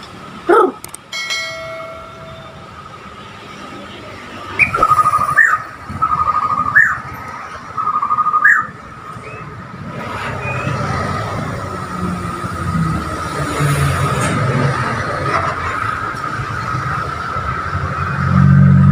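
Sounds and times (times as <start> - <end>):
steady high tone: 1.1 - 3.7
bird singing trilled phrases: 4.6 - 7.0.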